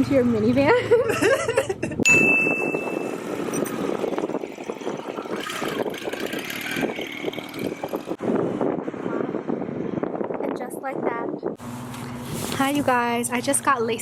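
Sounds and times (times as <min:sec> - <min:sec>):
motorcycle engine running: 0:02.2 - 0:08.4.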